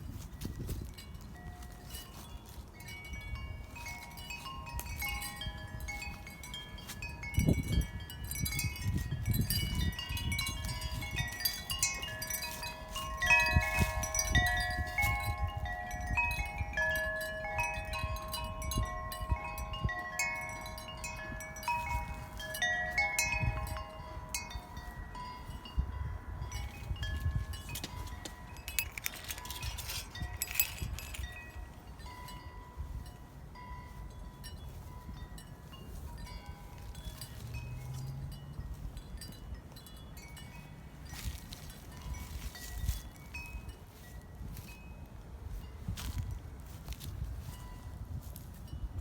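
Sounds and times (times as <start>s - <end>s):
wind chimes ringing: 0.0s - 49.0s
wind rumbling on microphone: 0.0s - 49.0s.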